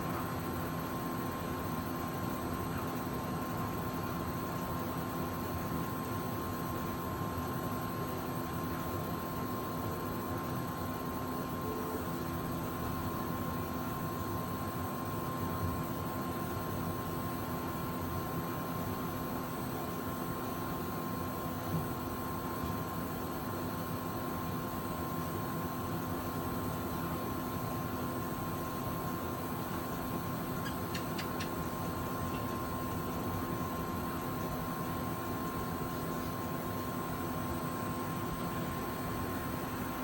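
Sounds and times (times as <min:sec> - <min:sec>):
faint hum: 0:00.0 - 0:40.0
faint ticks: 0:30.6 - 0:31.5.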